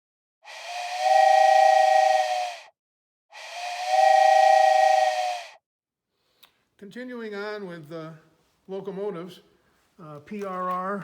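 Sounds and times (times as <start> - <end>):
steam train whistle blasts: 0.4 - 2.7, 3.3 - 5.6.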